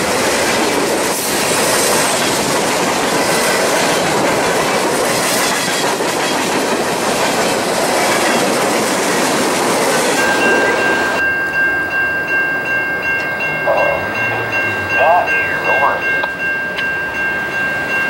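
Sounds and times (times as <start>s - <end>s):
steady high-pitched tone: 13.1s - 16.4s.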